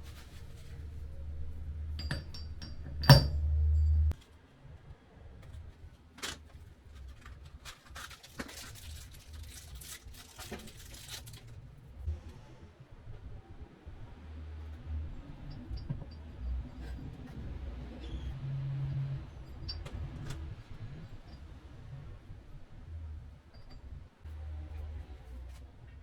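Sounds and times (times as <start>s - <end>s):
low hum: 0.0s - 4.2s, 8.8s - 26.0s
metal tools clinking: 0.1s - 4.1s.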